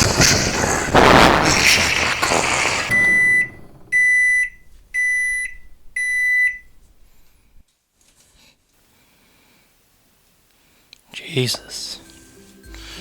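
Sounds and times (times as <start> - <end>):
microwave oven beeping: 2.9 - 7.0.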